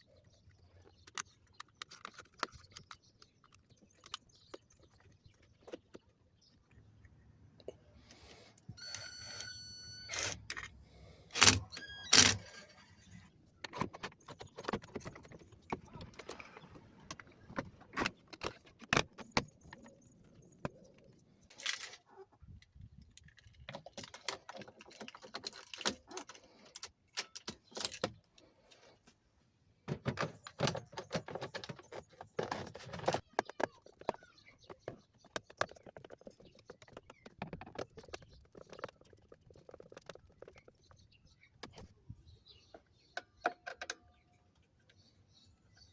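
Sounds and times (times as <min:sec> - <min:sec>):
metallic and plastic clicks: 0:00.5 - 0:06.0.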